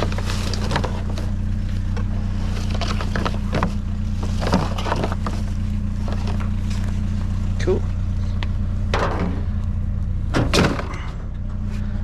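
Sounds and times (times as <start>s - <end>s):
clicks and scrapes of junk: 0.0s - 6.9s, 10.4s - 11.6s
vehicle engine idling: 0.0s - 12.0s.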